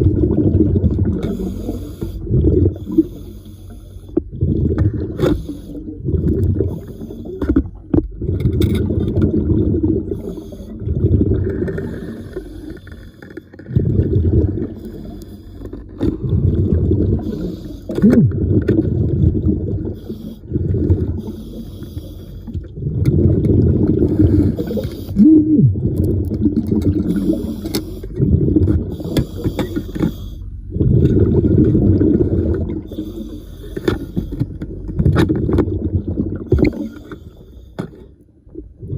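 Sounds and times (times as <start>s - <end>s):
diver breathing through regulator: 1.2s - 4.3s, 5.1s - 6.0s, 10.0s - 18.1s, 19.8s - 22.6s, 24.0s - 25.4s, 26.9s - 31.0s, 32.2s - 34.8s.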